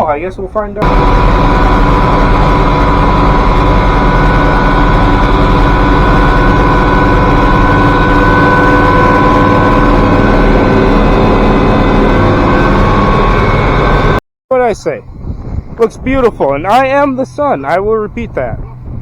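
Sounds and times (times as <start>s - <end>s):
low engine hum: 0.4s - 14.2s, 15.0s - 19.0s
steady whining tones: 0.4s - 19.0s.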